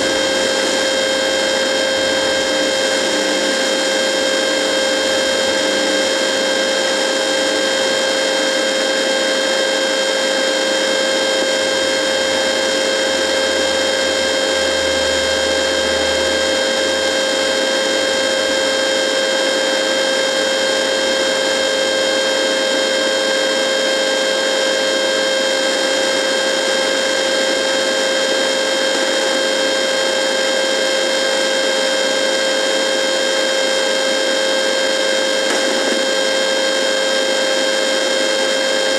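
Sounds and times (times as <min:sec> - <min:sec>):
radio static drone: 0:00.0 - 0:05.3, 0:11.4 - 0:18.8, 0:35.4 - 0:36.7
hum tone: 0:00.0 - 0:38.9.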